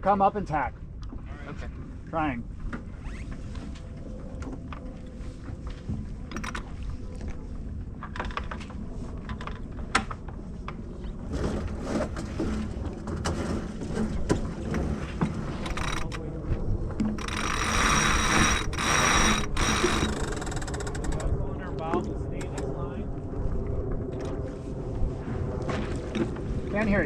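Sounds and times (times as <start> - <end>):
winch ratcheting clicks: 6.3 - 6.7, 15.5 - 16.2, 17.2 - 21.4, 22.4 - 22.7.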